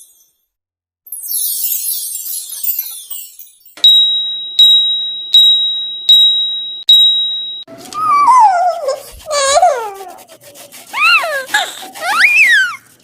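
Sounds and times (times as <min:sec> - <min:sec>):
high tinkling sparkle effect: 0:01.1 - 0:07.7
bright bell dings: 0:03.2 - 0:08.1.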